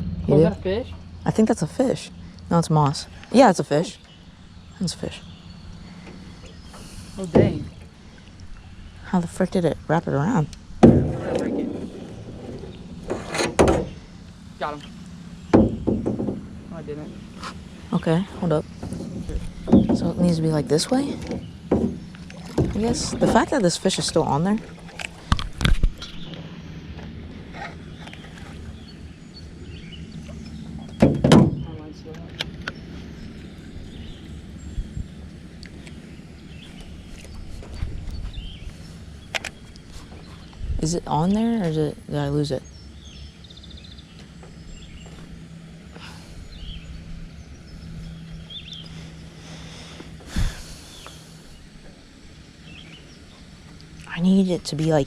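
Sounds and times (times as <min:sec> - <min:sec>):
steady low hum: 0:00.0 - 0:55.0
steady low rumble: 0:00.0 - 0:55.0
thump against boat hull: 0:07.2 - 0:07.7, 0:10.8 - 0:11.9, 0:13.0 - 0:14.0, 0:15.5 - 0:16.4, 0:18.8 - 0:20.2, 0:21.2 - 0:23.4, 0:30.8 - 0:31.7
sharp thump: 0:10.8 - 0:12.0, 0:13.0 - 0:14.0, 0:30.9 - 0:31.8.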